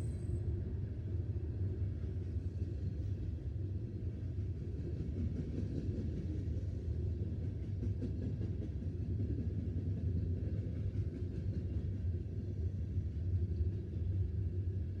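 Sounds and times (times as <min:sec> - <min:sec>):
train rolling past rumble: 0:00.0 - 0:15.0.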